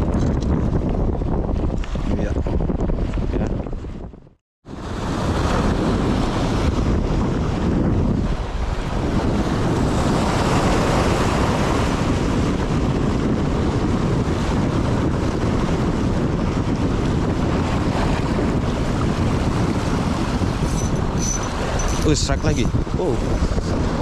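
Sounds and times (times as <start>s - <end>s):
wind buffeting microphone: 0.0s - 24.0s
waves washing against rocks: 16.8s - 24.0s.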